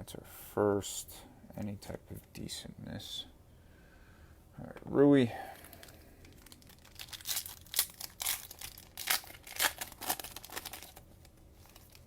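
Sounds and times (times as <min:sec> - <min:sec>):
thin plastic crinkling: 0:05.5 - 0:12.0.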